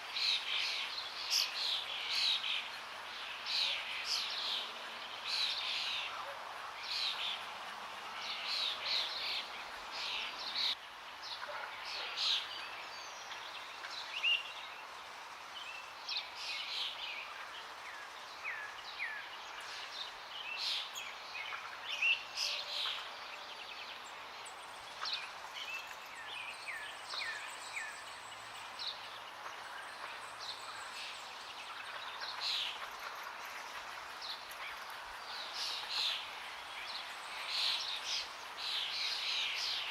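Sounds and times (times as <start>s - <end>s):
rushing water: 0.0s - 39.9s
songbirds chirping: 0.0s - 39.9s.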